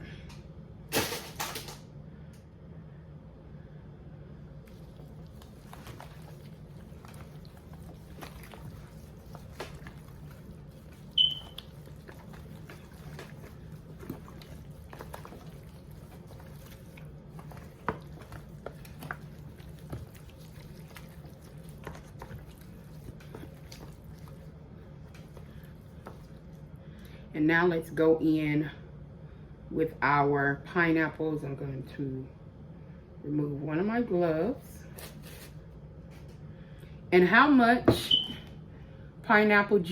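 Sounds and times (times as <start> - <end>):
steady low hum: 0.0 - 39.9
soft clicks and squishes: 4.6 - 27.1.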